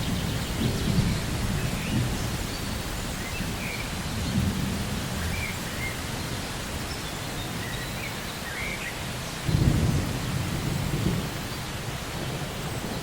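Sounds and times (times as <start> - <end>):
low rumble of thunder: 0.0 - 5.8, 9.4 - 13.0
steady rain: 0.0 - 13.0.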